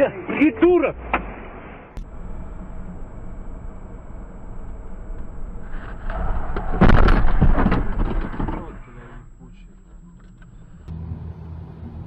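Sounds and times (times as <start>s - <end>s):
car engine and road noise: 0.0s - 12.0s
loud noisy surge: 2.0s - 9.8s.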